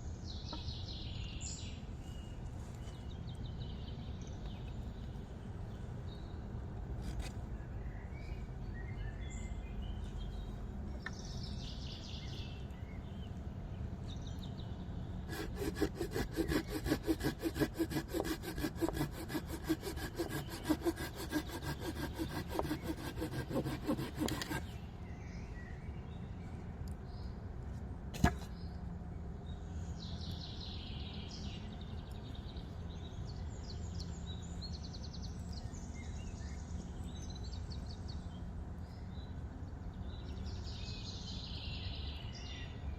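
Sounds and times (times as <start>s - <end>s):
hand saw cutting wood: 15.3s - 24.8s.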